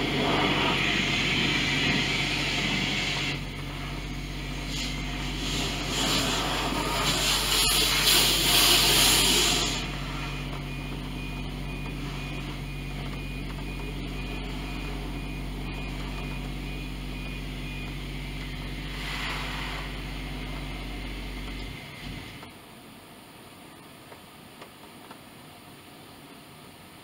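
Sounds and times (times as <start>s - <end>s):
rush of noise: 0.0s - 10.4s, 18.8s - 20.7s
car engine idling: 0.0s - 25.4s
brief hiss: 18.9s - 20.0s.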